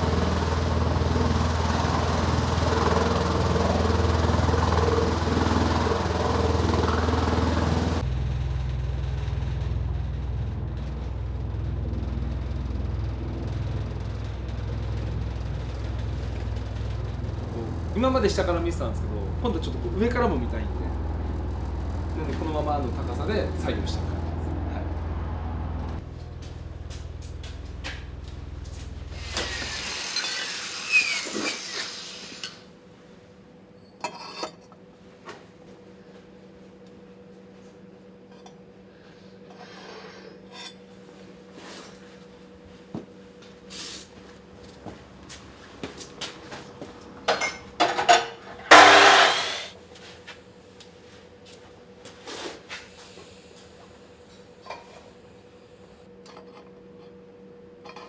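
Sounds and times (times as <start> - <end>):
mechanical hum: 0.0 - 58.0
metal scraping rattling clatter: 47.9 - 49.7.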